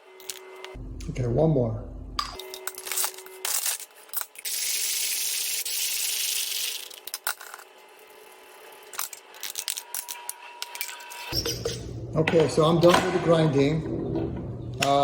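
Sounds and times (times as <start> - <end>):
coffee beans rattling: 4.2 - 10.2.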